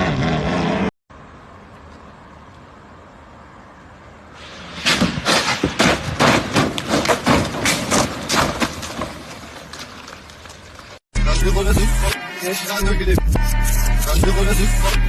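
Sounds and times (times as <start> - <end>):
vehicle crash bangs and crunches: 4.5 - 11.0
hip hop music with rapping: 11.2 - 15.0.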